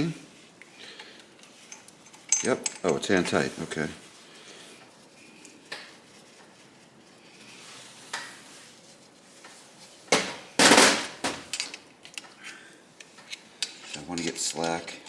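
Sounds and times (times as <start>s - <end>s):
light metallic clinks: 1.4s - 3.4s
metal tools clanking and rattling: 1.6s - 3.4s.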